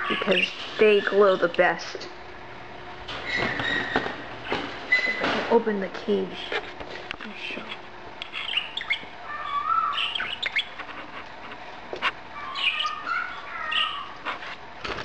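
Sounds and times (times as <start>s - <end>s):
budgies chirping and twittering: 0.0s - 1.6s, 3.2s - 5.4s, 7.6s - 11.1s, 12.0s - 14.6s.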